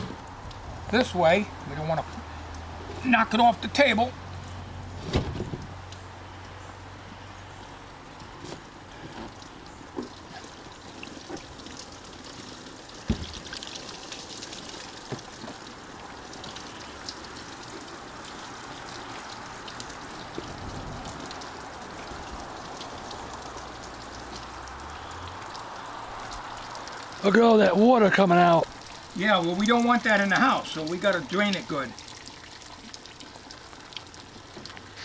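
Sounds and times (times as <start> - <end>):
water pouring and trickling: 0.0 - 35.0
sharp thump: 5.0 - 5.6.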